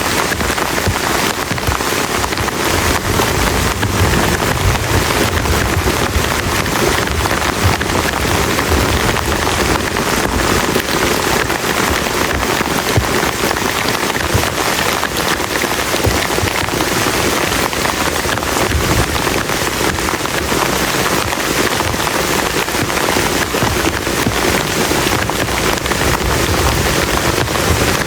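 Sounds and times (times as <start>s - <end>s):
heavy rain on a plastic tarp: 0.0s - 28.0s.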